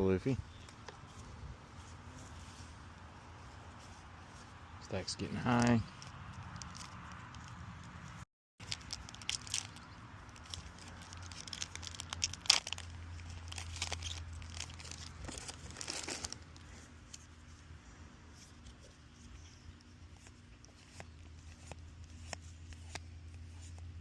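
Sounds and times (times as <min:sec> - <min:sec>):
foil pack crinkling and tearing: 0:08.6 - 0:17.2.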